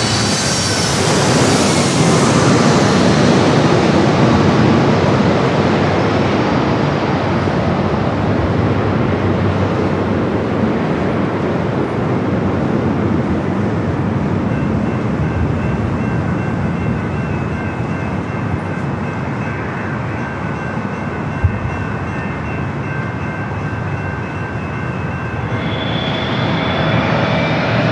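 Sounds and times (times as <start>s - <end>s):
jet engine noise: 0.0s - 17.6s, 24.5s - 27.9s
faint steady whine: 24.7s - 27.9s.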